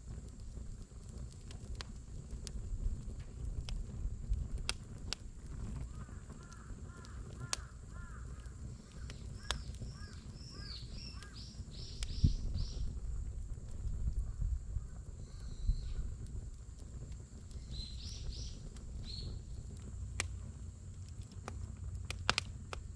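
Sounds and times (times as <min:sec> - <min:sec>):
campfire crackling and popping: 0:00.0 - 0:22.9
birds calling: 0:06.0 - 0:12.8.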